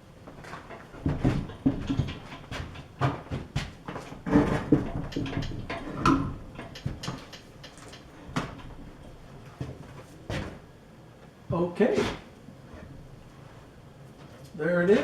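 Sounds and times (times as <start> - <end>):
heavy metal parts clunking: 0.4 - 9.2.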